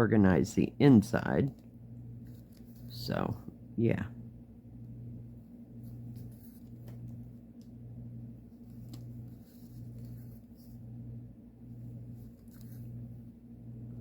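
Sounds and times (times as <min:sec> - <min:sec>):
low pulsing hum: 0:00.0 - 0:14.0
needle and floss through fabric: 0:08.5 - 0:10.9, 0:11.9 - 0:13.1.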